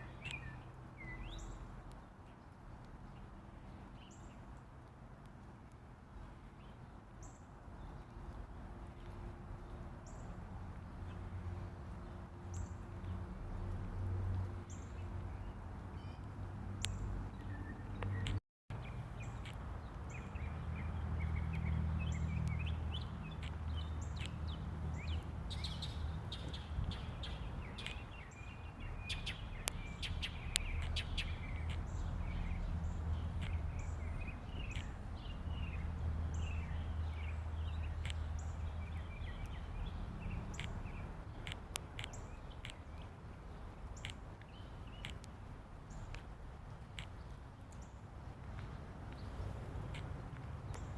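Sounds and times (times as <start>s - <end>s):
mockingbird chirping: 16.8s - 43.1s.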